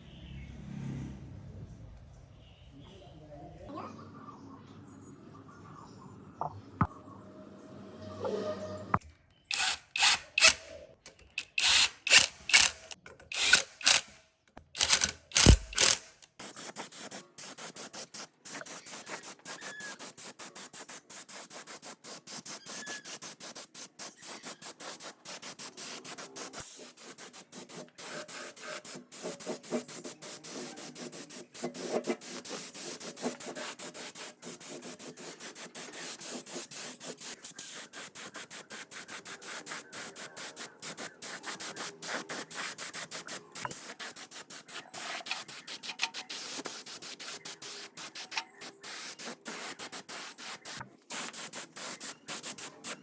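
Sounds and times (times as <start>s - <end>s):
short loud hissing bursts: 15.4s - 53.0s
hand sanding metal scraping: 24.1s - 53.0s.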